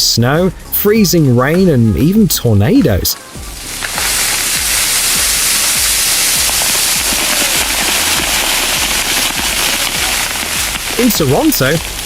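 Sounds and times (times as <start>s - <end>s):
music with low beat: 0.0s - 12.0s
freezing rain pattering: 3.4s - 12.0s.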